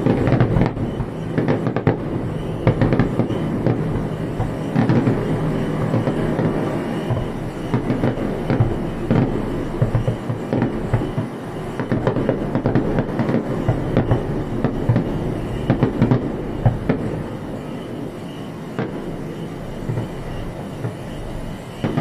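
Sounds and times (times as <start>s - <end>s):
sharp firework cracks: 0.0s - 17.2s
fireworks barrage rumbling: 0.0s - 22.0s.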